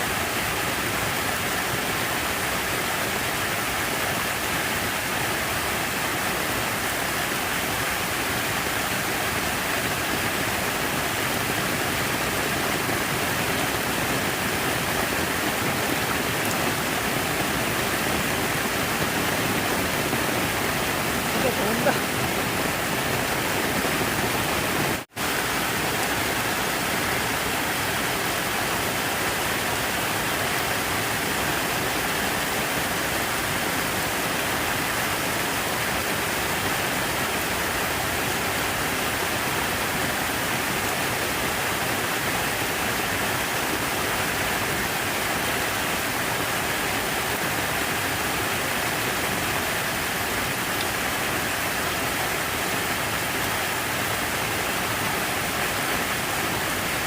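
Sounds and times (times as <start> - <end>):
falling water rushing: 0.0 - 57.0.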